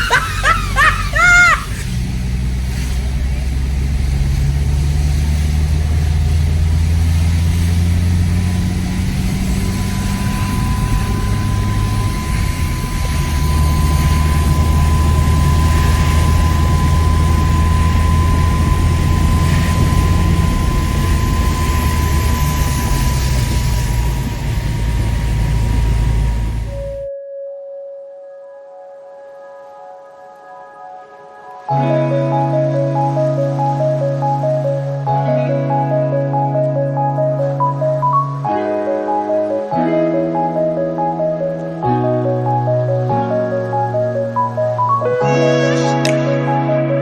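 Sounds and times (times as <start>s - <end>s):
truck engine droning: 1.8s - 27.1s
thin steady whine: 6.5s - 27.1s.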